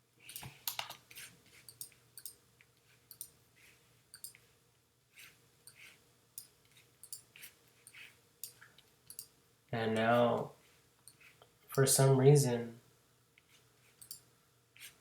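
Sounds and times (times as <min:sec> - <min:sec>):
computer mouse clicks: 0:00.2 - 0:01.0, 0:01.7 - 0:02.4, 0:03.1 - 0:03.4, 0:04.1 - 0:04.4, 0:14.0 - 0:14.2.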